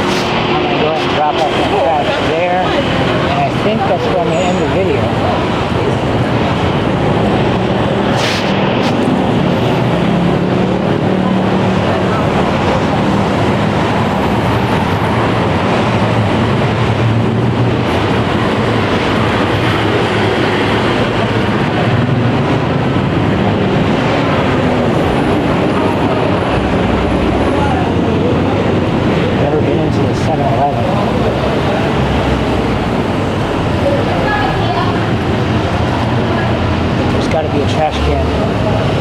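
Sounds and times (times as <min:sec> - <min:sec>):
city street traffic roar: 0:00.0 - 0:39.0
engines running low: 0:00.0 - 0:39.0
brief sharp noise: 0:08.1 - 0:09.1.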